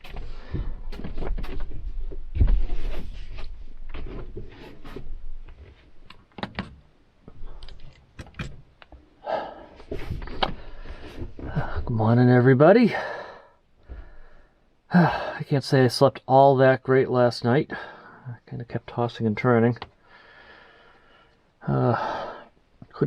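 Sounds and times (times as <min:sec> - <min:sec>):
things being handled in a van: 0:00.0 - 0:12.0.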